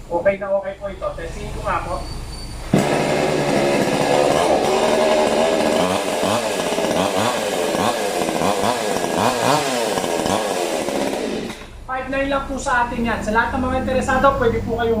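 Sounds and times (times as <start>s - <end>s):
chainsaw running and revving: 2.7s - 11.8s.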